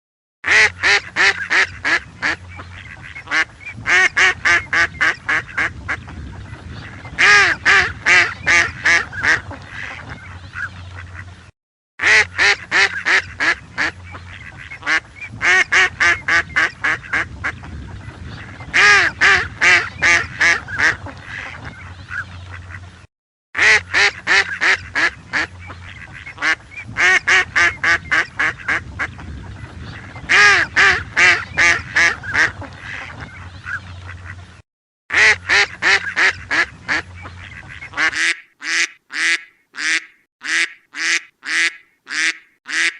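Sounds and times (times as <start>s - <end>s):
ducks quacking: 0.4s - 23.0s, 23.6s - 42.9s.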